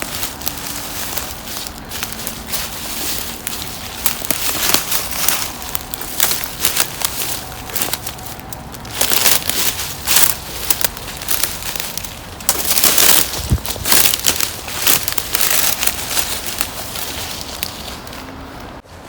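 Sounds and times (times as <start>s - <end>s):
footsteps crunching through dry leaves: 0.0s - 19.0s.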